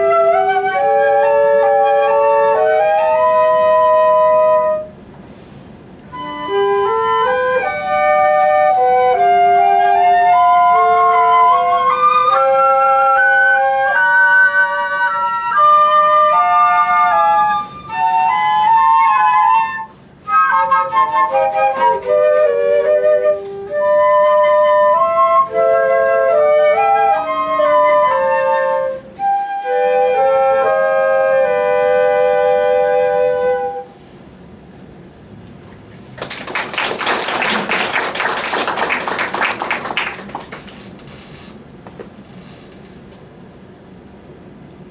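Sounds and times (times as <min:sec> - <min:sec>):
flute melody: 0:00.0 - 0:05.1, 0:06.0 - 0:34.0.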